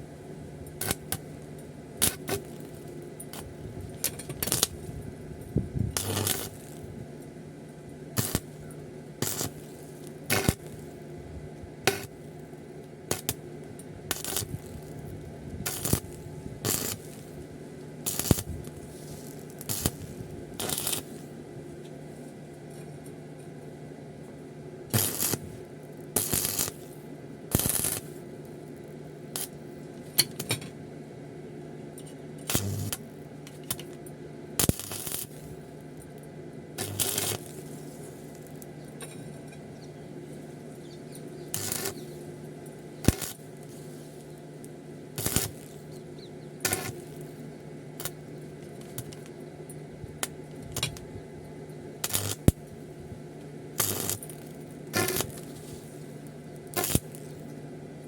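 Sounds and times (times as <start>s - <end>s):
steady electrical hum: 0.0s - 58.0s.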